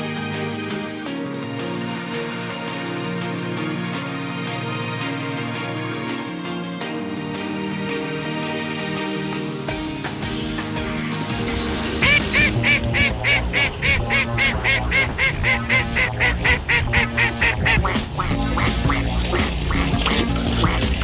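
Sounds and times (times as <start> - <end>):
background music: 0.0 - 21.0
duck quacking: 12.0 - 21.0.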